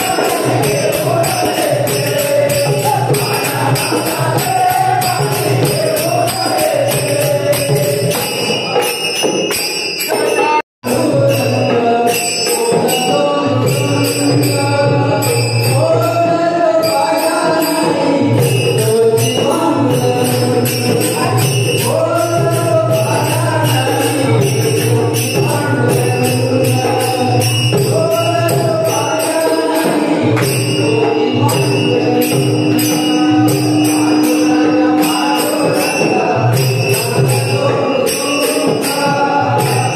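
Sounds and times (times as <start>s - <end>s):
person singing devotional song: 0.0s - 9.1s, 10.2s - 39.9s
hand cymbals striking a beat: 0.0s - 39.9s
instrumental accompaniment: 0.0s - 39.9s.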